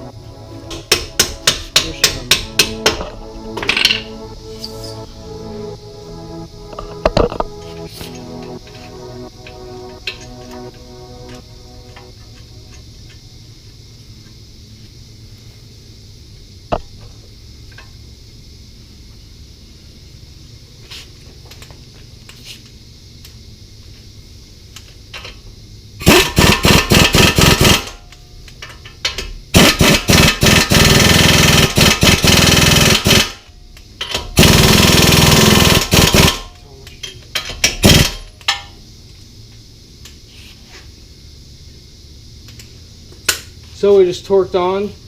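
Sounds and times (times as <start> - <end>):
impact wrench hammering: 0.7 - 4.0, 29.6 - 33.4, 34.0 - 36.4, 37.4 - 38.7.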